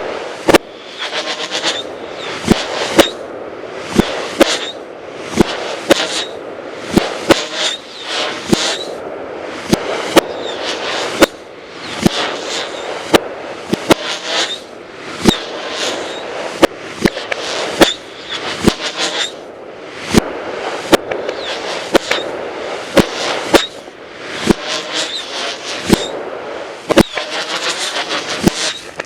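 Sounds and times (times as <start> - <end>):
fireworks cracking: 0.0 - 29.0
fireworks hissing and whistling: 0.0 - 29.0.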